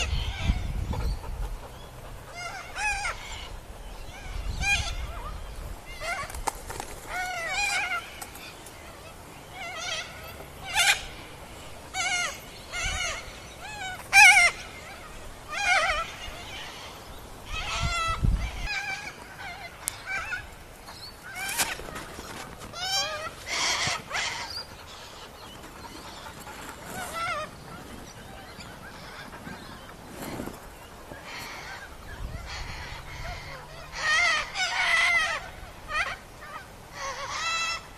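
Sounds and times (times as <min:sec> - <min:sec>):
cockatoo calling and screeching: 0:11.9 - 0:20.5, 0:21.3 - 0:30.6
cockatoo harsh cries: 0:11.9 - 0:20.5.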